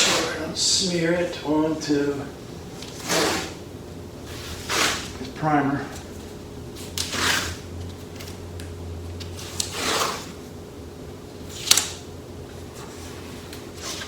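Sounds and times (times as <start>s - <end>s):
scraping rustle: 4.3s - 5.3s, 12.6s - 14.0s.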